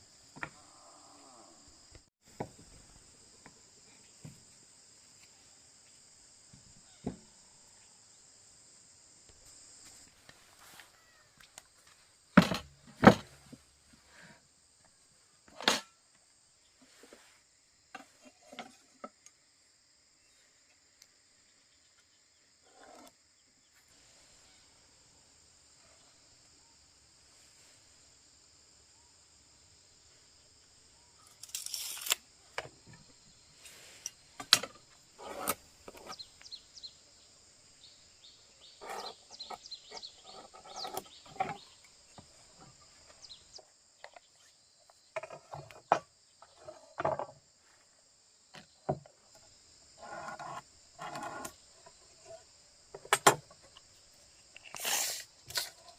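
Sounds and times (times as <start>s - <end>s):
insect chorus: 0.0s - 55.9s.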